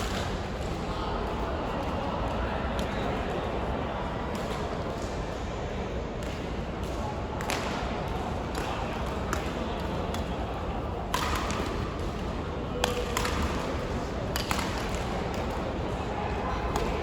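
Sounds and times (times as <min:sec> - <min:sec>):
hall background noise: 0:00.0 - 0:17.0
voices: 0:06.8 - 0:17.0
rackets hitting shuttlecock: 0:11.1 - 0:12.2, 0:12.8 - 0:15.6, 0:16.6 - 0:17.0.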